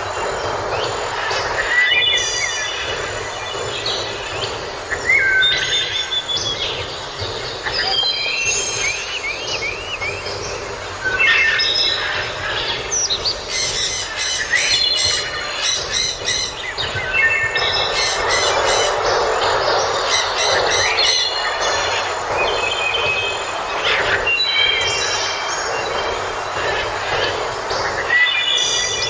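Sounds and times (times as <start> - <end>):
rushing surf or wind: 0.0 - 29.0
seabirds squawking: 7.5 - 29.0.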